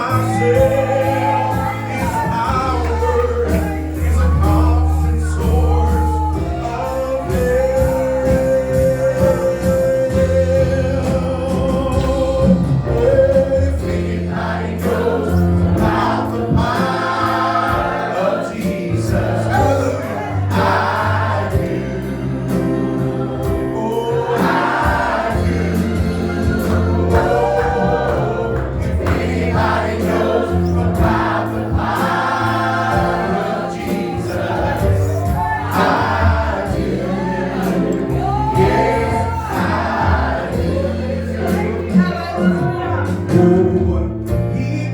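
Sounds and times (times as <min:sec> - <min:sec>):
bass line: 0:00.0 - 0:44.9
gospel choir singing: 0:00.0 - 0:44.9
light percussion beat: 0:15.8 - 0:43.8.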